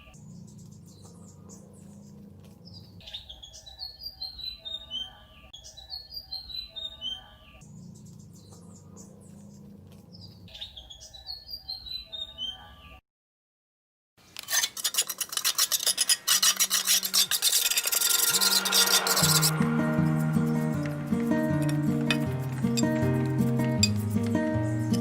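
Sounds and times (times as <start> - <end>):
descending bird chirps: 16.9 - 23.4
higher bird twittering: 17.6 - 23.9
low steady rush: 17.8 - 23.8.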